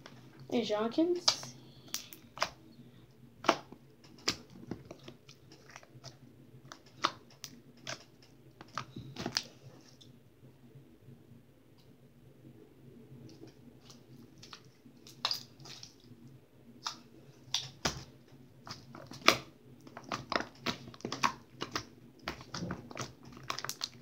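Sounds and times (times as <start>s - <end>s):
slime squished with sticky pops: 3.4s - 9.5s, 18.7s - 24.0s.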